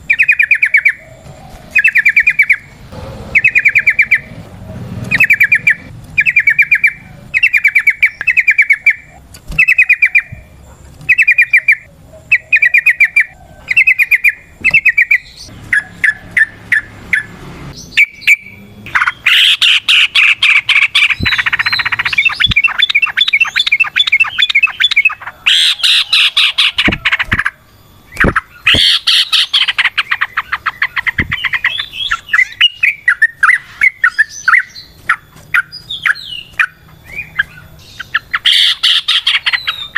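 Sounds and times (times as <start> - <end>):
bird rattling calls: 3.3 - 4.3, 18.9 - 39.9.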